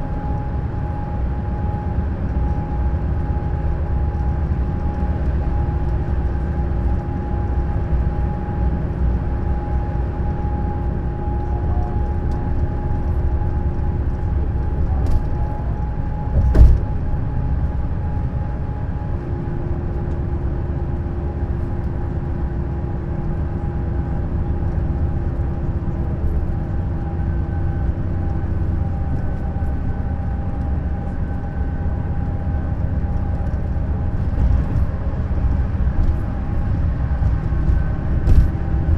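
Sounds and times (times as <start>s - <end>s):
coach engine rumble: 0.0s - 38.9s
faint steady whine: 0.0s - 38.9s
loud thump: 16.4s - 17.0s.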